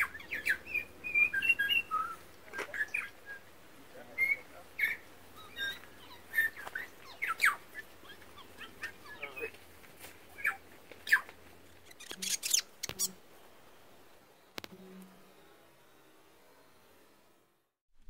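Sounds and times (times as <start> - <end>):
birds whistling and chirping: 0.0 - 3.5, 4.1 - 9.5, 10.4 - 13.2.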